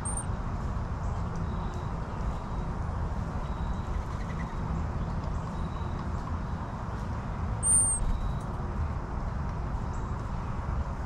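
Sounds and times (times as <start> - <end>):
high bird chirp: 0.0 - 0.2, 7.6 - 8.0.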